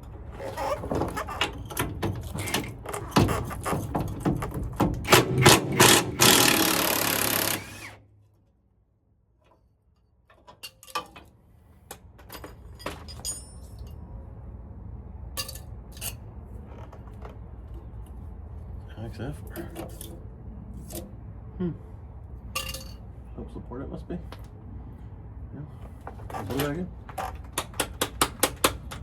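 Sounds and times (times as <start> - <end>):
low steady hum: 6.8 - 27.1
metal tools clanking: 12.2 - 14.0, 22.6 - 23.1.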